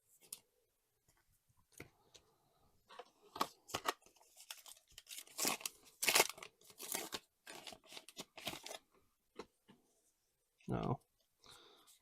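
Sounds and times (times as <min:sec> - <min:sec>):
wrapper tearing and crinkling: 0:03.7 - 0:08.8.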